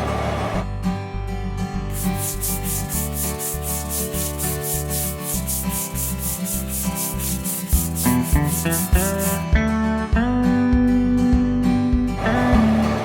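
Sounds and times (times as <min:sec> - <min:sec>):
sandpaper rubbing strokes: 0:01.9 - 0:09.4
background music with bass line: 0:01.9 - 0:13.0.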